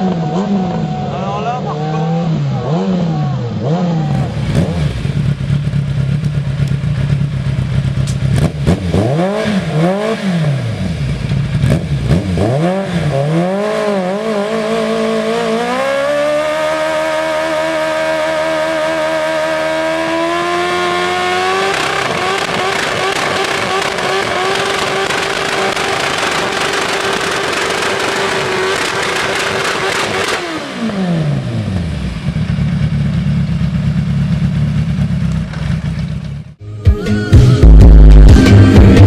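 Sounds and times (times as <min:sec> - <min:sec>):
engine revving through loud exhaust: 0:00.0 - 0:05.8, 0:08.3 - 0:32.5.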